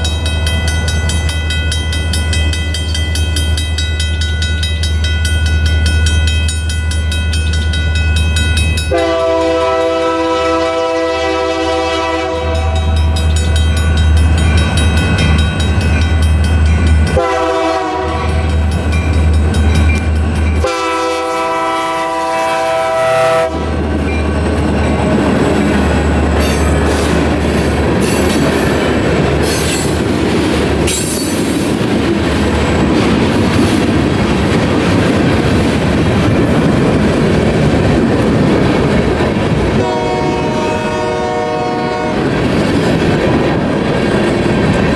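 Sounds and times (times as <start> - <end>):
locomotive horn: 8.9 - 13.2, 17.1 - 18.4, 20.6 - 23.8, 39.8 - 42.3
train wheels clacking over rails: 23.7 - 40.2.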